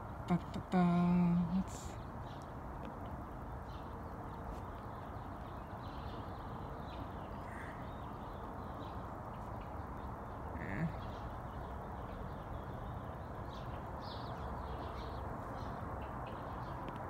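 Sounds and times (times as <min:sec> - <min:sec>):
outdoor background hiss: 0:00.0 - 0:17.0
faint bird calls: 0:05.9 - 0:12.9.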